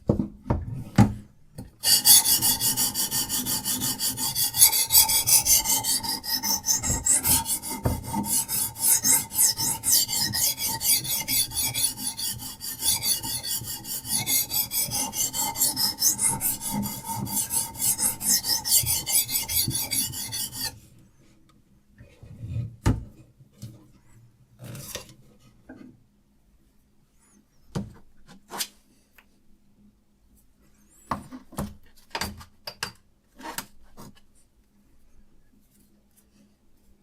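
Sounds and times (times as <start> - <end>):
sharpening stone scraping knife edge: 1.8 - 20.7.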